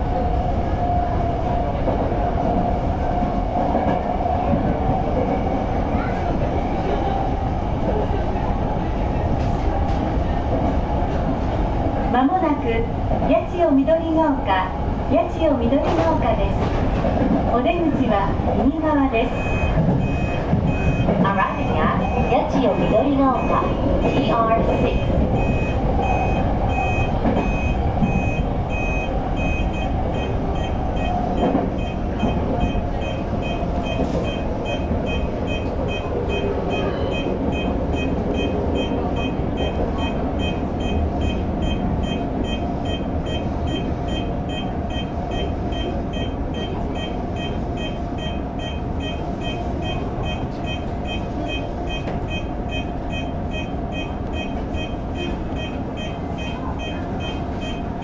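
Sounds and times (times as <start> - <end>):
train wheels and motors rumbling: 0.0 - 58.0
high electronic beep: 24.8 - 58.0.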